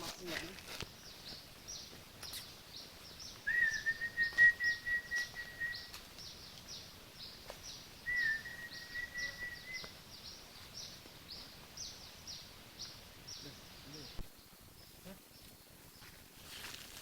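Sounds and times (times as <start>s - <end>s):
long whistled bird notes: 3.2s - 6.0s, 8.0s - 9.9s.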